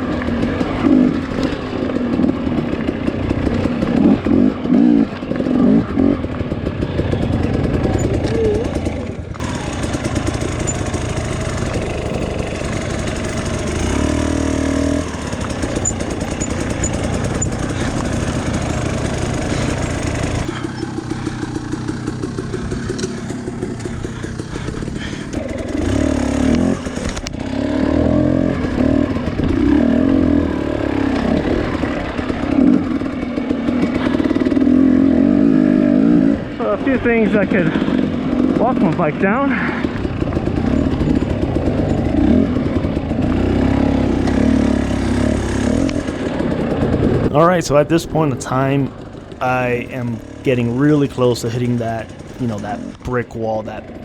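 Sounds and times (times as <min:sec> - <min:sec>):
dirt bike engine revving: 0:00.0 - 0:36.6, 0:37.2 - 0:54.0.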